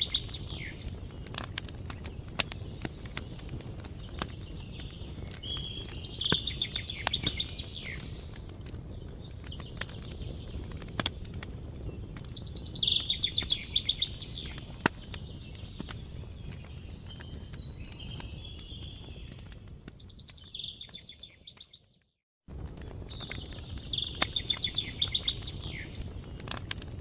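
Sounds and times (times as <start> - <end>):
songbird trilling: 0.0 - 0.9, 4.8 - 8.1, 12.4 - 14.7, 23.4 - 26.0
campfire crackling and popping: 0.0 - 27.0.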